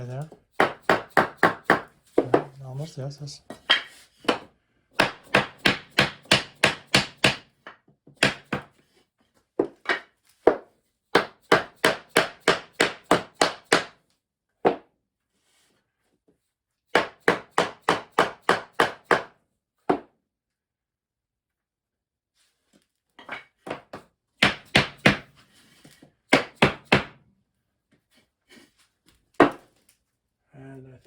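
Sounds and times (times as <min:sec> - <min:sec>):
hammer knocking floor tile: 0:00.6 - 0:02.6, 0:09.6 - 0:13.9, 0:14.6 - 0:14.9.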